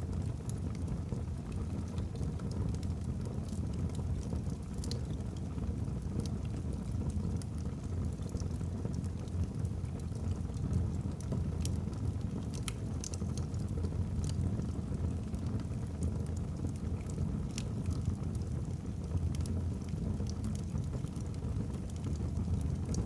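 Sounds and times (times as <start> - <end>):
fire rumbling: 0.0 - 23.0
logs crackling and popping: 1.4 - 23.0.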